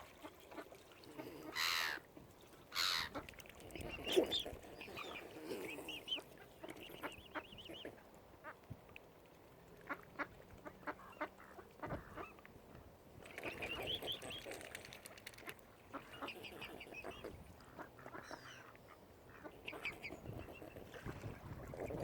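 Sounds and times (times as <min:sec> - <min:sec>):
waterfowl calling: 0:01.1 - 0:02.1, 0:02.7 - 0:08.0.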